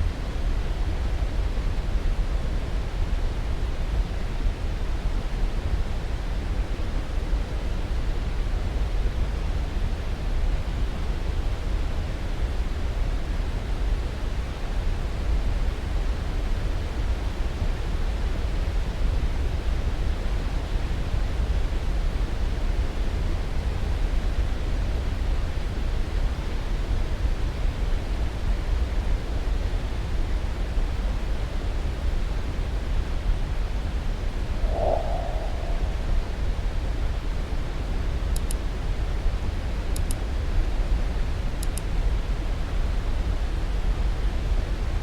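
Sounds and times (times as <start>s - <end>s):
steady rushing noise: 34.5s - 37.0s.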